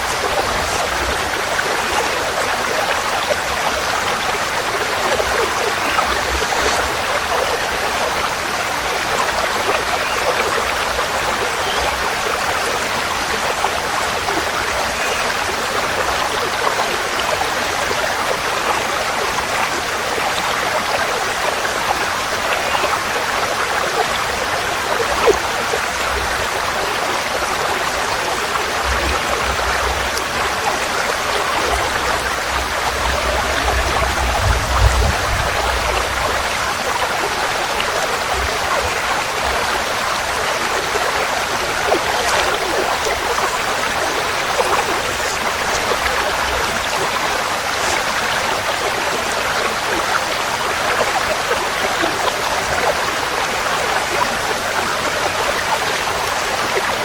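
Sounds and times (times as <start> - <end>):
stream flowing over stones: 0.0 - 57.0.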